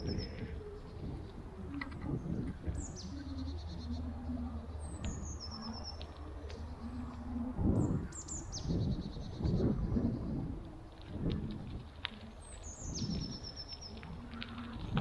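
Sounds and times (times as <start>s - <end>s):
low rumble: 0.0s - 15.0s
songbirds chirping: 0.0s - 15.0s.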